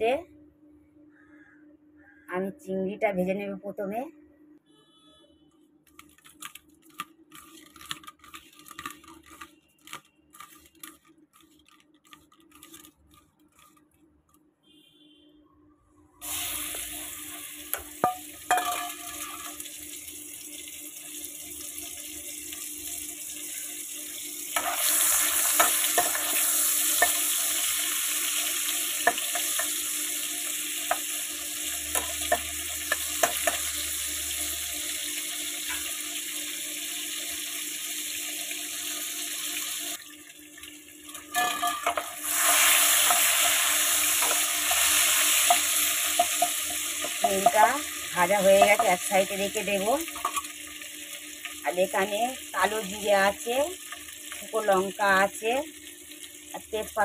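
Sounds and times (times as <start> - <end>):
prawns sizzling in hot oil: 16.2 - 57.0
spatula scraping and tapping pan: 17.7 - 19.6, 31.9 - 33.8, 44.2 - 44.5, 50.2 - 50.5.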